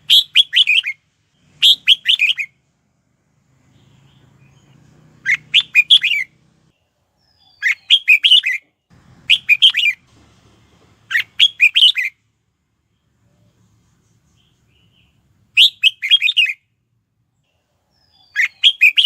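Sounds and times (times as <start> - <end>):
bird singing whistled phrases: 0.0 - 2.5, 5.2 - 6.3, 7.3 - 8.6, 9.3 - 10.0, 11.1 - 12.1, 14.9 - 16.6, 18.0 - 19.0.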